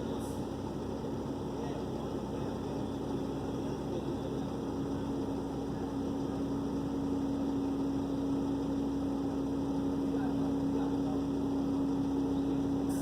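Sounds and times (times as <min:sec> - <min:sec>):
truck engine humming: 0:00.0 - 0:13.0.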